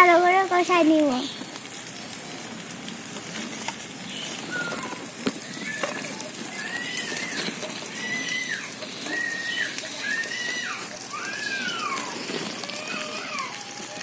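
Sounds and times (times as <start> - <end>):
paste sizzling in oil: 0.0 - 14.0
bird whistled call: 4.1 - 5.0.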